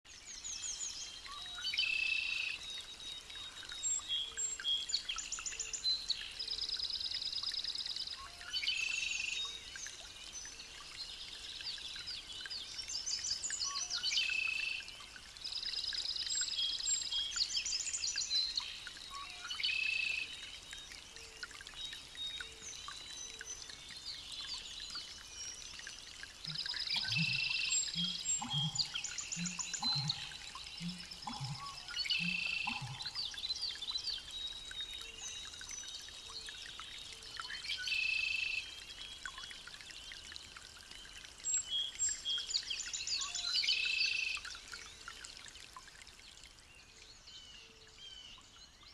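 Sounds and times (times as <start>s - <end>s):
soft bird chirps: 0.4s - 45.2s
songbird trilling: 26.5s - 33.3s.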